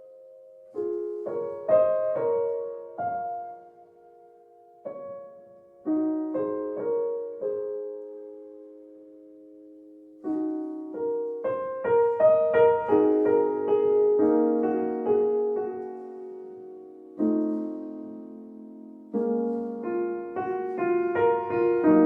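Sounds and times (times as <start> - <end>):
solo piano playing slowly: 0.0 - 22.0.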